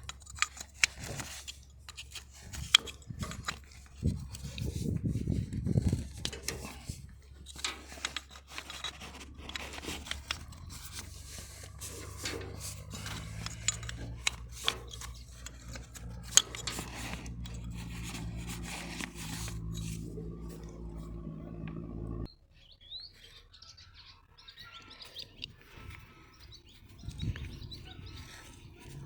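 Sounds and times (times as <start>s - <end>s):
scraping and rubbing on metal: 0.0s - 22.3s
steady low hum: 0.0s - 22.3s.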